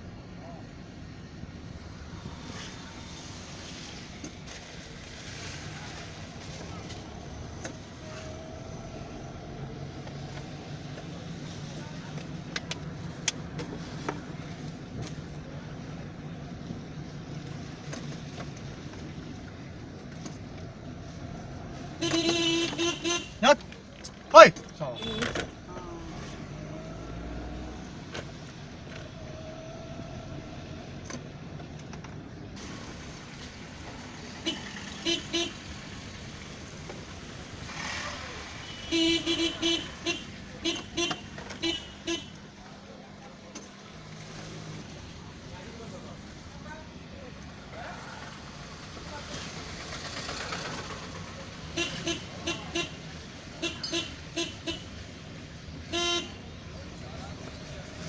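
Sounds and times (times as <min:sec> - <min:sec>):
tyres hissing on wet road: 0:01.9 - 0:12.5, 0:32.5 - 0:42.2, 0:43.8 - 0:58.0
rain: 0:02.2 - 0:12.5, 0:32.5 - 0:40.2, 0:43.9 - 0:54.2
car horns beeping: 0:21.9 - 0:23.6, 0:24.3 - 0:25.6, 0:34.4 - 0:35.7, 0:38.6 - 0:42.4, 0:51.7 - 0:55.0, 0:55.8 - 0:56.6.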